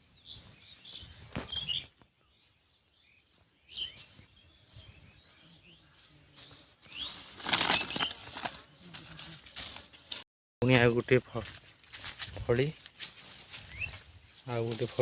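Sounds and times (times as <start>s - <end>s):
birds chirping: 0.0s - 9.5s, 13.4s - 15.0s
faint outdoor background noise: 0.0s - 15.0s.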